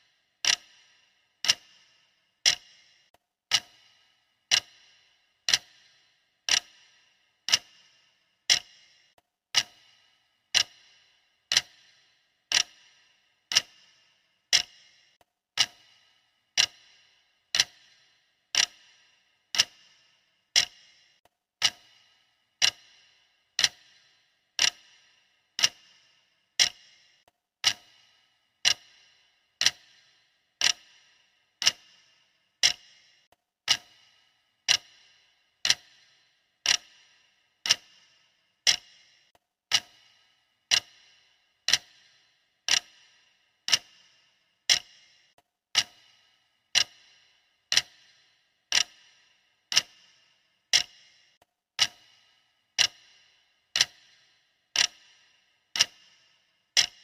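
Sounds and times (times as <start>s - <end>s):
clock ticking: 0.0s - 57.0s.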